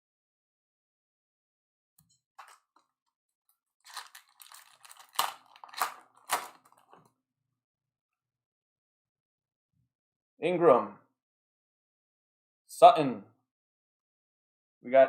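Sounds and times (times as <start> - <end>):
card packaging rustling: 2.4 - 2.8, 3.8 - 7.0.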